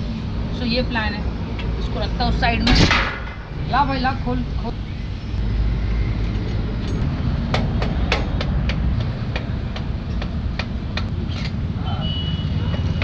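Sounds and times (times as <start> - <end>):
hand tools knocking on metal: 6.5 - 11.1.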